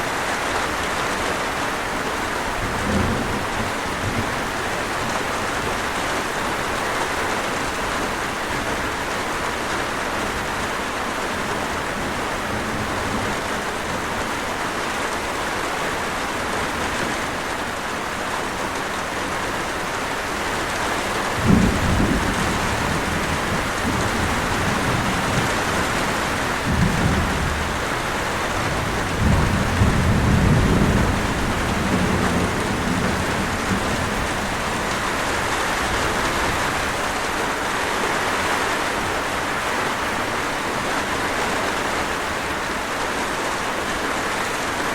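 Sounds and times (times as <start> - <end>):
heavy rain hissing: 0.0 - 44.9
thunder rumbling: 21.3 - 37.2.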